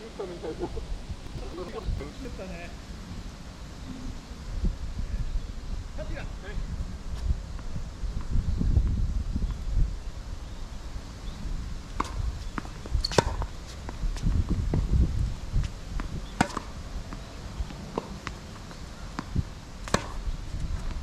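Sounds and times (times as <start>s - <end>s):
tennis ball bouncing: 1.2s - 2.3s.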